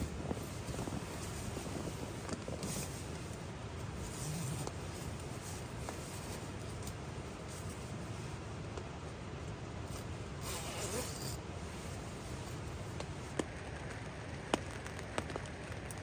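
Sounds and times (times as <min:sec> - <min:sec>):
rain ticking on tarp: 0:13.5 - 0:16.0.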